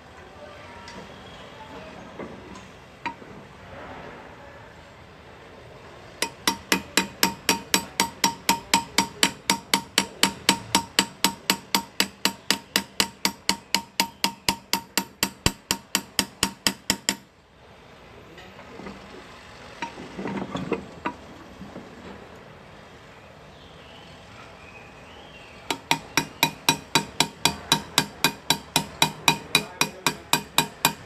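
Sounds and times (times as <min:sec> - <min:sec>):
hammer tapping chisel into metal: 0:06.2 - 0:17.3, 0:25.7 - 0:31.0.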